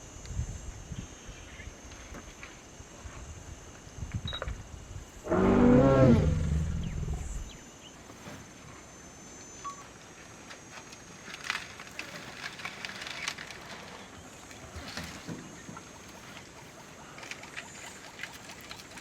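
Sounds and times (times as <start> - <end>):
lion roaring: 5.2 - 7.6.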